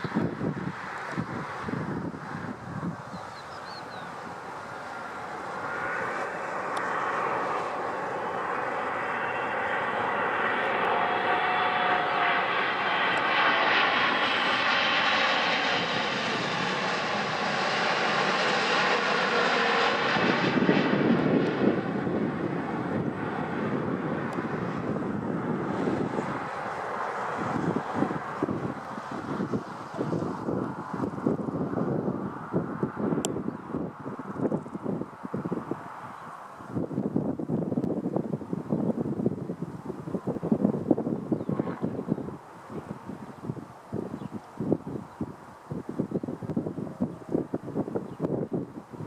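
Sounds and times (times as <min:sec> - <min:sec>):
jet engines roaring: 0:00.0 - 0:49.0
whining engine tones: 0:04.9 - 0:31.4.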